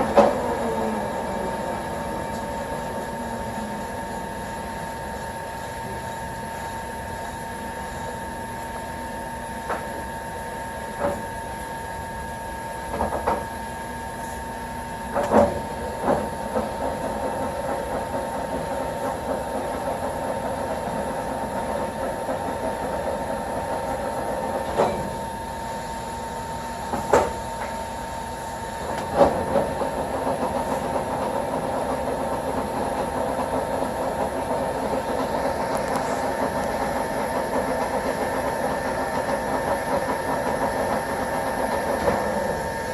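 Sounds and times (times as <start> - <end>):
lathe running: 0.0 - 42.9.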